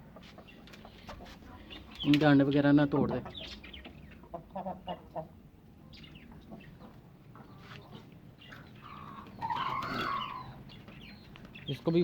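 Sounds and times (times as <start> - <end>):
chickens clucking: 0.0 - 12.0
chicken drawn-out call: 8.8 - 10.6.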